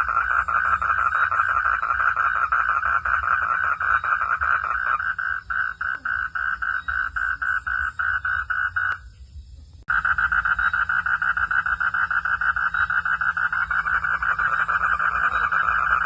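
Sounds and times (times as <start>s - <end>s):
frogs calling in pulses: 0.0s - 9.2s, 9.9s - 16.0s.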